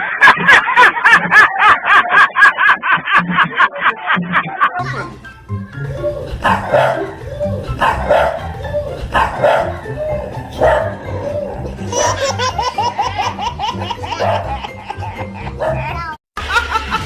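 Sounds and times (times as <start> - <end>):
background music: 4.8 - 17.0
dog barking: 6.4 - 7.1, 7.8 - 8.5, 9.1 - 9.9, 10.6 - 11.0, 14.2 - 14.5.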